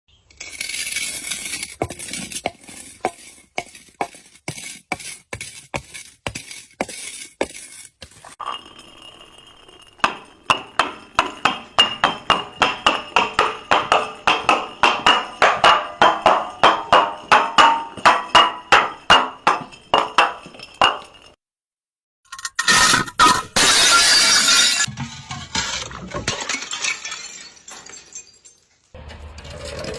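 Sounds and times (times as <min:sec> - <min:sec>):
glass bottle clinking: 0:08.4 - 0:21.3, 0:22.8 - 0:24.9.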